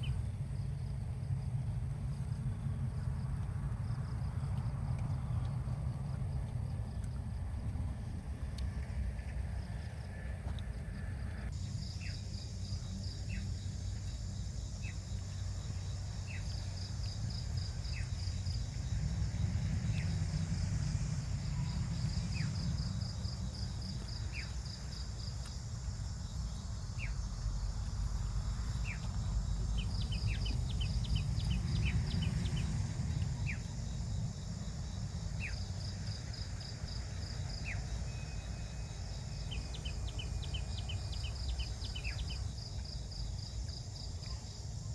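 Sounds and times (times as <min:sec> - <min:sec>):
steady low rumble: 0:00.0 - 0:44.9
insects trilling: 0:09.2 - 0:44.9.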